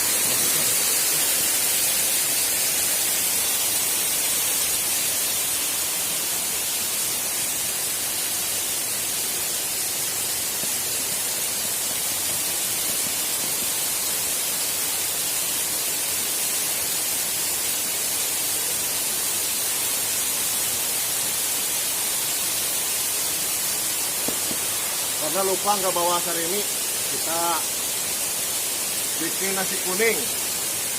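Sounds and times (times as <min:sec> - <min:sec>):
waterfall rushing: 0:00.0 - 0:18.5, 0:19.3 - 0:30.9.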